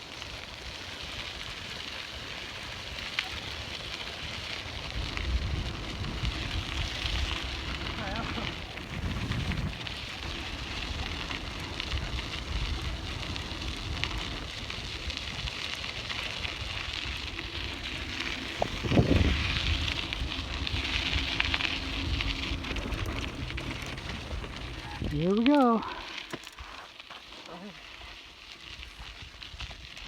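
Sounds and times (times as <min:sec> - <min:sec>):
bike tyres on gravel: 0:00.0 - 0:30.0
wind rumble on microphone: 0:02.6 - 0:26.3.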